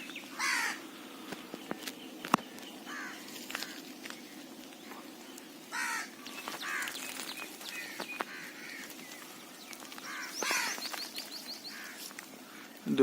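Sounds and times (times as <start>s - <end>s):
crows cawing: 0.3s - 0.9s, 2.5s - 4.2s, 5.6s - 12.6s.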